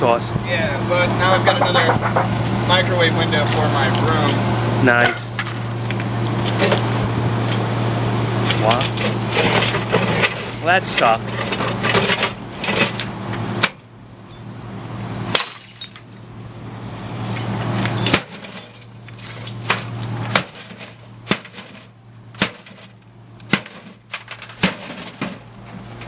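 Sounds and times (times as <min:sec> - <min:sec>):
cracking and clanking: 0:01.2 - 0:02.6, 0:08.4 - 0:13.8, 0:17.3 - 0:26.0
blows on metal casing and glass: 0:15.3 - 0:25.5.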